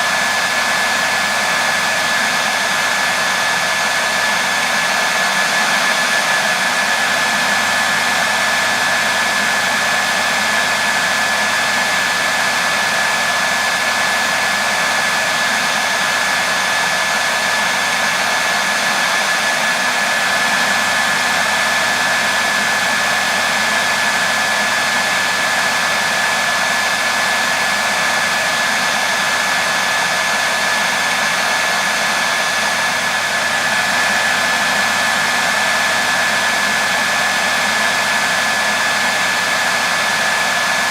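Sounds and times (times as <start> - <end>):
hair dryer blowing and whining: 0.0 - 40.9.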